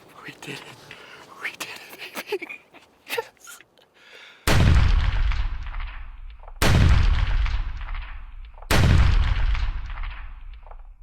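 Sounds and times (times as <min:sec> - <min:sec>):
deep booming hits: 0:04.5 - 0:10.8.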